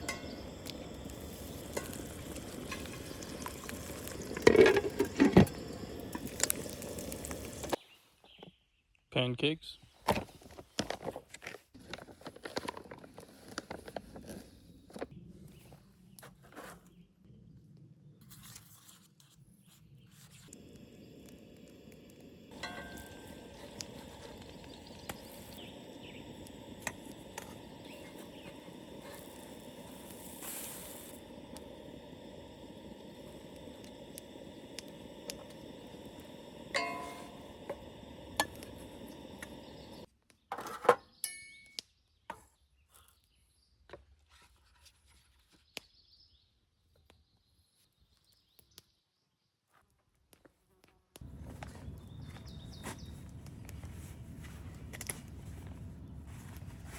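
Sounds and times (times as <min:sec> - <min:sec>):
pancakes sizzling in a pan: 0:00.0 - 0:07.8, 0:20.2 - 0:40.1.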